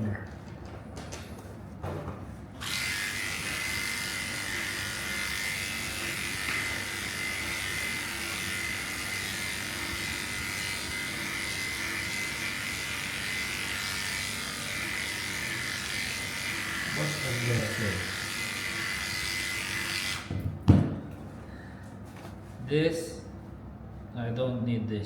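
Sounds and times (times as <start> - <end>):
electric clippers humming: 2.6 - 20.5.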